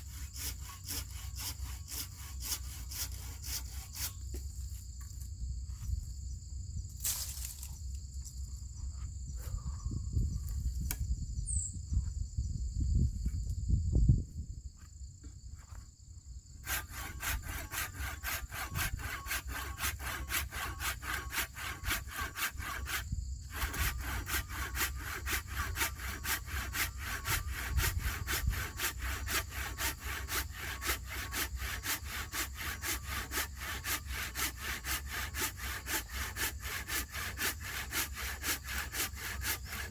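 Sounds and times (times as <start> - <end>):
hand saw cutting wood: 0.0 - 4.4, 16.6 - 39.9
high insect buzz: 0.0 - 39.9.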